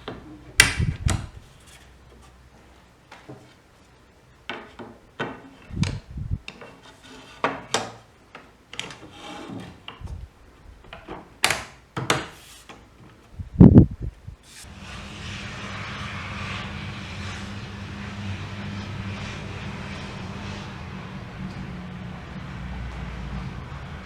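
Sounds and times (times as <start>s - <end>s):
wooden boards knocking and scraping: 0.0s - 3.7s, 4.4s - 13.4s.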